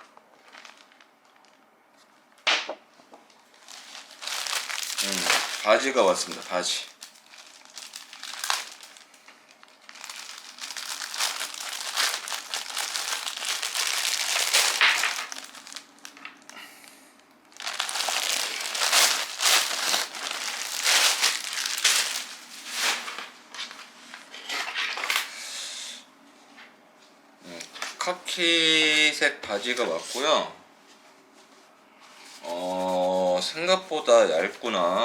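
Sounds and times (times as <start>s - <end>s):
plastic packaging crinkling: 0.0s - 1.7s, 3.4s - 16.6s, 17.5s - 23.9s.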